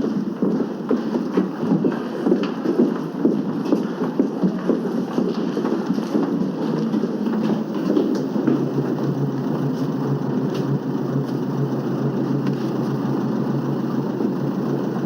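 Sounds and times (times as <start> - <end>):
street traffic: 6.4 - 15.0
vehicle engine running: 7.2 - 15.0.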